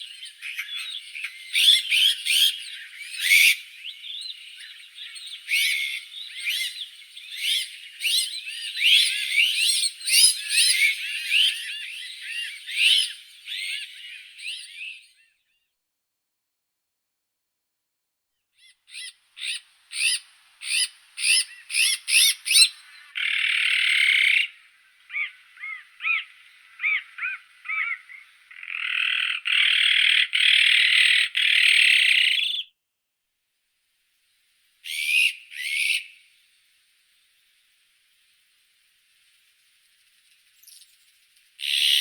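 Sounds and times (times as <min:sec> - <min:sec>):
magpie calling: 0:00.0 - 0:14.8, 0:18.6 - 0:32.6, 0:34.8 - 0:36.2, 0:41.6 - 0:42.0.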